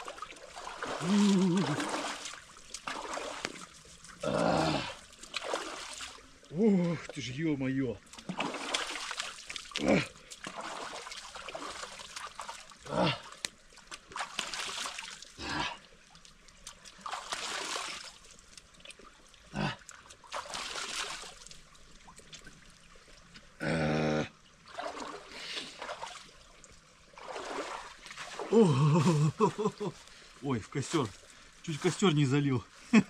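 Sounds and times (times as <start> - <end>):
water splashing and trickling: 0.0 - 33.0
man groaning: 1.0 - 1.8, 4.2 - 5.0, 9.8 - 10.1, 12.9 - 13.2, 23.6 - 24.3, 28.5 - 29.5.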